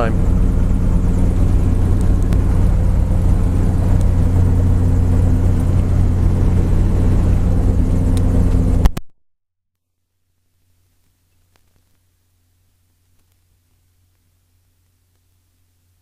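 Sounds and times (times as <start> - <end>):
helicopter engine and rotors: 0.0 - 9.0.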